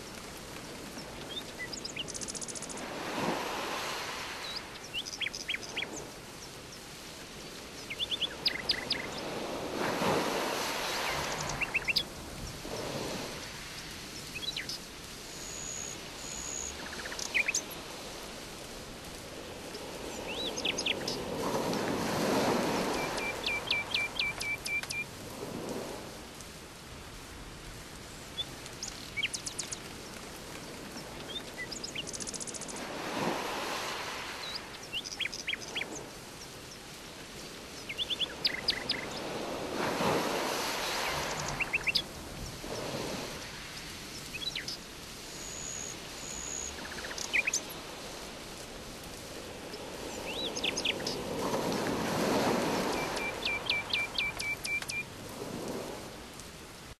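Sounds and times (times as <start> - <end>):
rushing water: 0.0 - 57.0
birds chirping in trills: 10.8 - 12.1, 22.8 - 25.0, 45.4 - 47.8, 52.6 - 55.0.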